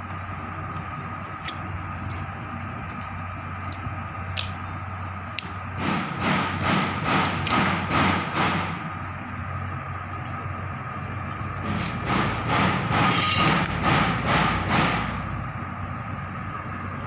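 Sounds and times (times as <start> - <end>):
electrical hum with thin whine: 0.0 - 17.0
rough scraping strokes: 11.6 - 13.7.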